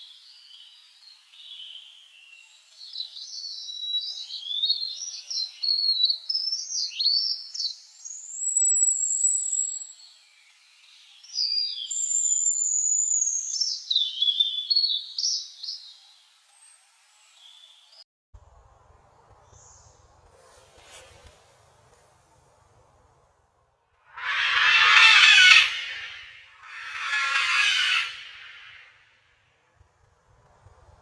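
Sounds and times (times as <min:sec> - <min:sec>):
songbird singing: 0:00.2 - 0:17.9, 0:24.2 - 0:28.8.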